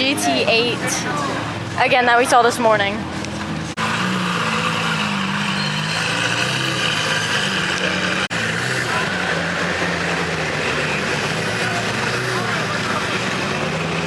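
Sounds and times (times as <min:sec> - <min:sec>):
car engine idling: 0:03.0 - 0:14.0.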